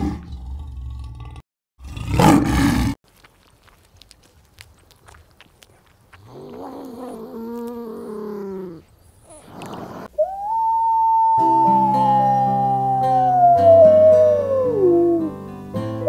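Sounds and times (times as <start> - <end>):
whining animal call: 6.2 - 15.4
wolf howl: 10.1 - 15.4
instrumental music with guitar: 11.4 - 16.0.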